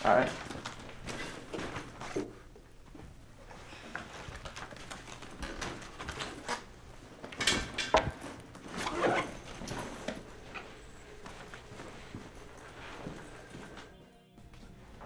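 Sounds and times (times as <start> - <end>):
soft footsteps: 8.1 - 15.0.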